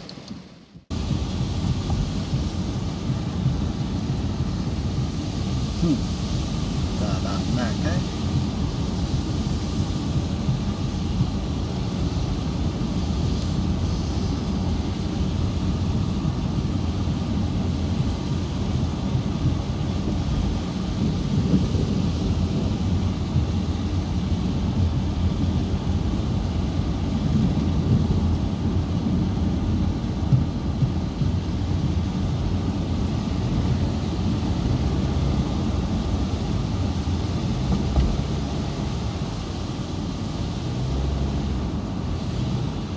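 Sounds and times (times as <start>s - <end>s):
faint hiss: 0.0s - 27.6s
wind buffeting microphone: 0.6s - 42.9s.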